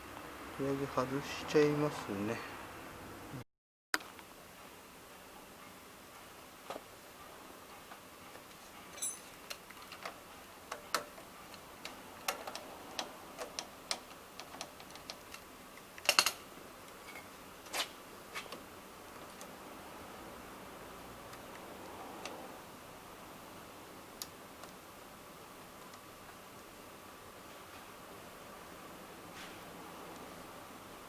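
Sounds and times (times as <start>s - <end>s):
hand tools clicking and knocking: 7.8s - 16.4s.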